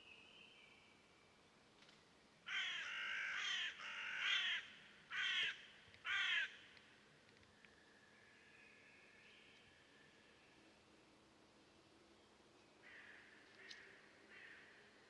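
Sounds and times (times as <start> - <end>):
bird cawing calls: 2.5 - 6.7, 12.8 - 14.8.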